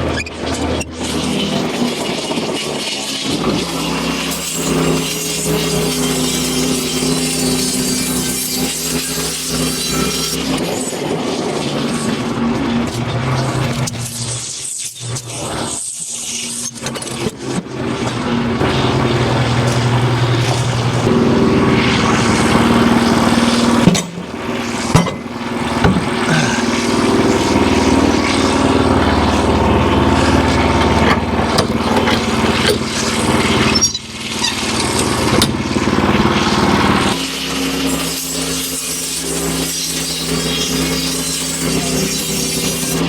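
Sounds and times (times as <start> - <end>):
small gasoline engine running: 0.0 - 43.0
sharp knocks: 23.8 - 26.4.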